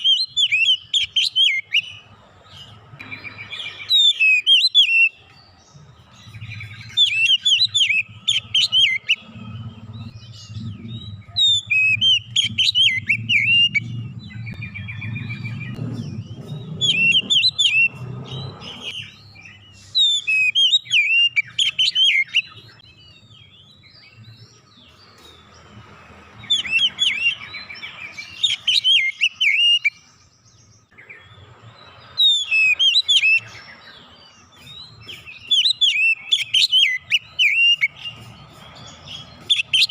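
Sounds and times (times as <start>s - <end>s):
songbird whistling phrases: 0.0s - 2.0s, 3.0s - 5.3s, 6.4s - 9.2s, 10.7s - 23.0s, 26.4s - 30.1s, 32.1s - 34.0s, 34.6s - 38.2s
low hum: 8.0s - 18.9s.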